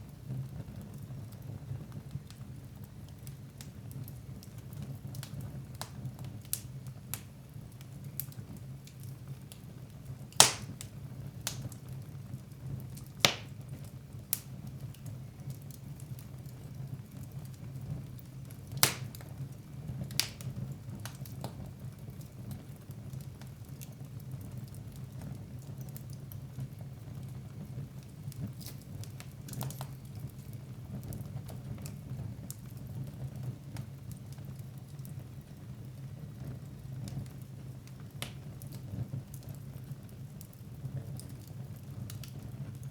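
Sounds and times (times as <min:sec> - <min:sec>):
fire crackling in fireplace: 0:00.0 - 0:42.9
sharp pops of fire: 0:10.3 - 0:11.8, 0:13.0 - 0:15.0, 0:18.6 - 0:19.4, 0:20.0 - 0:21.6, 0:28.0 - 0:30.4, 0:37.8 - 0:38.8.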